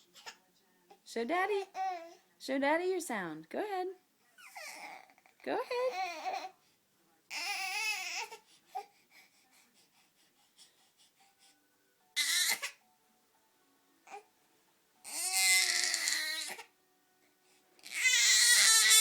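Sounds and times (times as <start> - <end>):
baby crying: 1.6 - 2.2, 4.4 - 6.5, 7.3 - 8.9, 12.2 - 12.8, 15.0 - 16.7, 17.8 - 19.0.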